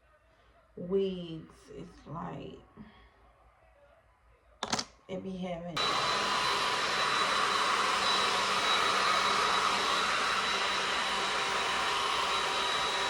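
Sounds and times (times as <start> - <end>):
hair dryer blowing: 5.8 - 13.0.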